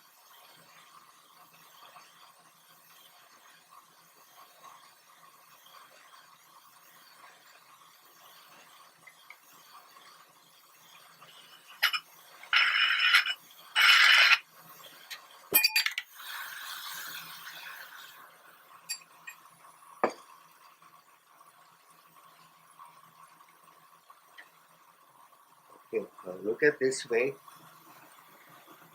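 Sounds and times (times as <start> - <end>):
glass clinking and ringing: 11.8 - 14.4, 15.5 - 16.1, 18.9 - 20.2.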